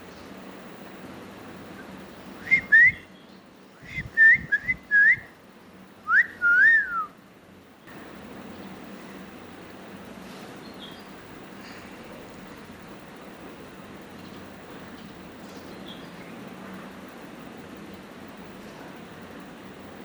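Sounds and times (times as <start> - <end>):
person whistling: 2.4 - 3.0, 3.8 - 5.3, 6.1 - 7.1.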